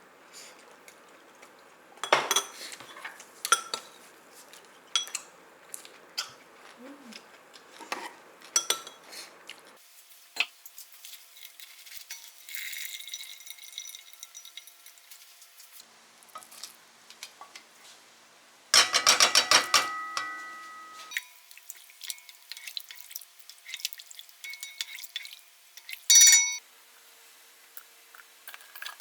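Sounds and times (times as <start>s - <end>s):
utensils clinking against dishes: 2.0s - 4.0s, 4.9s - 5.3s, 7.8s - 9.1s, 11.4s - 15.0s, 18.8s - 21.4s, 24.4s - 26.6s.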